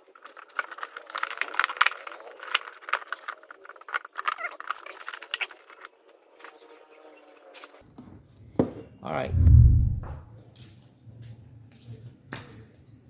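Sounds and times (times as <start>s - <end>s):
plastic clicks and rattles: 0.0s - 6.0s.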